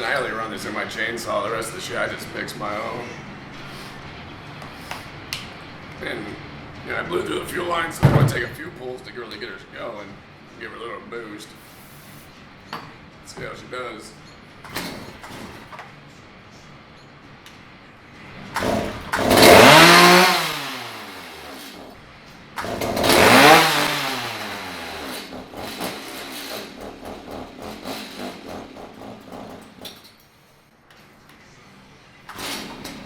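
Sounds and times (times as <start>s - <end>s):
chainsaw engine revving and idling: 18.6s - 21.9s, 22.6s - 28.6s.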